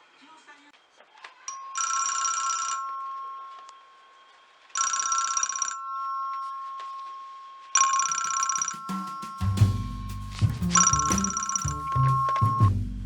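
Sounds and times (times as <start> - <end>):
rotary telephone ringing: 1.5 - 9.4.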